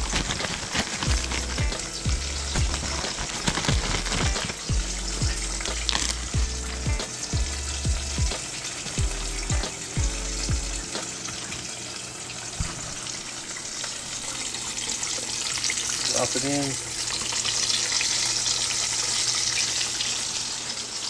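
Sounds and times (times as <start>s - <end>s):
fish fillets frying in oil: 0.0s - 21.0s
music with deep bass kicks: 1.1s - 11.0s.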